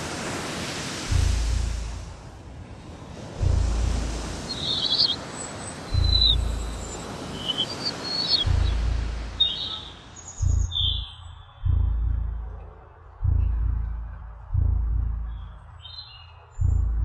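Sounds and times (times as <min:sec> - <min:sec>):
steady wash of noise: 0:00.0 - 0:15.8
deep low throb: 0:01.1 - 0:02.4, 0:03.4 - 0:04.5, 0:05.9 - 0:06.9, 0:08.4 - 0:09.5, 0:10.4 - 0:15.8, 0:16.6 - 0:17.0
high bird chirps: 0:04.4 - 0:11.9, 0:15.3 - 0:16.6.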